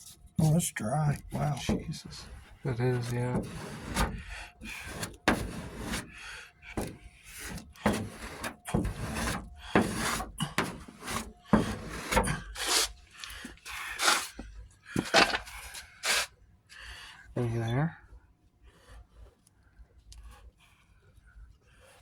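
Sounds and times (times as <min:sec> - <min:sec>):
hand sanding rasping strokes: 0:01.4 - 0:13.0, 0:13.8 - 0:14.4, 0:16.0 - 0:16.3.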